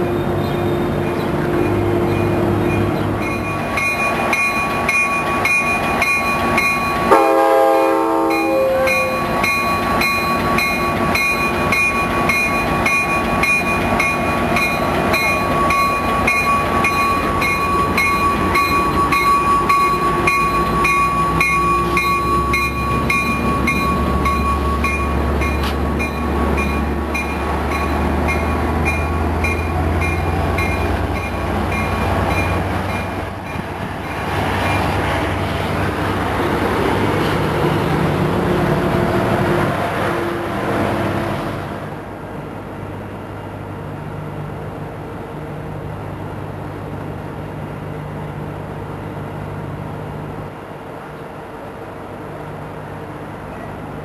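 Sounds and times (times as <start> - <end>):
diesel locomotive engine drone: 0.0 - 54.0
train horn: 7.1 - 9.3.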